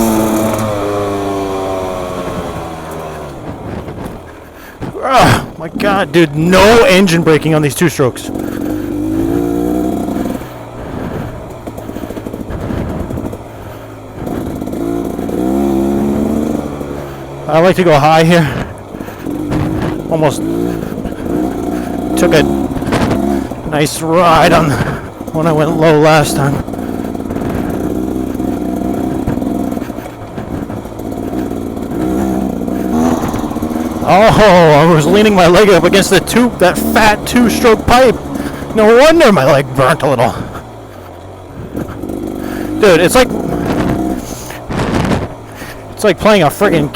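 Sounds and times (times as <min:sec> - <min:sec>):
dirt bike engine revving: 0:00.0 - 0:46.9.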